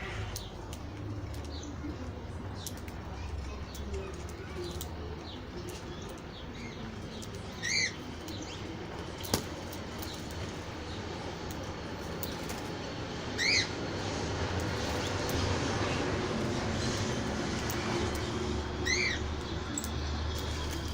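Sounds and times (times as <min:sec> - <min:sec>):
birds chirping: 0:00.0 - 0:20.9.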